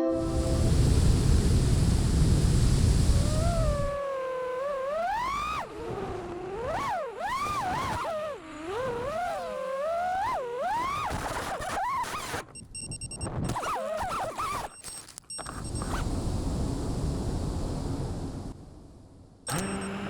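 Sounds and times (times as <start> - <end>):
drone motors whining: 3.2 - 11.4, 19.5 - 20.0.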